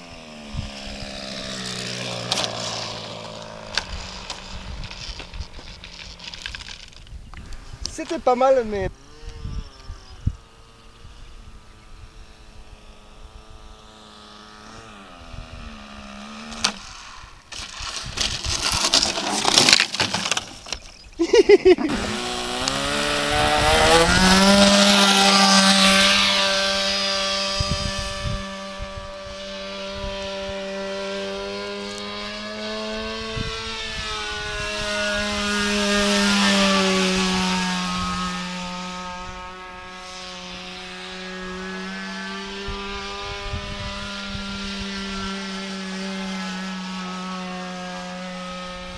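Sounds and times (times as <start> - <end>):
gusty wind on microphone: 0.0 - 18.9, 22.0 - 30.7, 32.2 - 39.9, 42.6 - 45.3
model airplane engine buzzing: 0.0 - 48.9.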